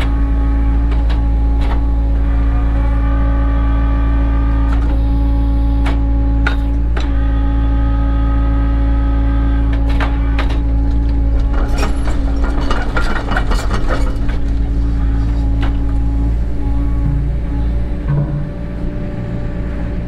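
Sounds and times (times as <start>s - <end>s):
diesel engine with high whine: 0.0s - 20.0s
metallic knocks and clanks: 9.9s - 16.0s, 17.1s - 18.8s.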